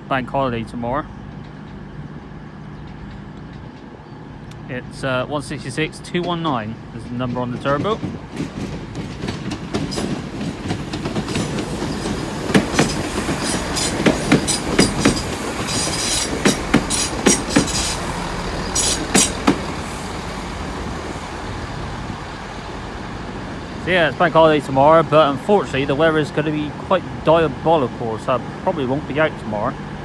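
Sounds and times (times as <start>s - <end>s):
train rumble: 0.0s - 30.0s
train wheels clicking over joints: 7.2s - 24.7s.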